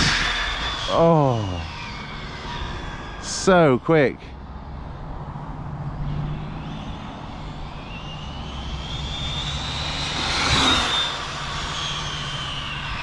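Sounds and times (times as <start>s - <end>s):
rc car electric motor whining: 0.0s - 3.4s, 6.0s - 13.0s.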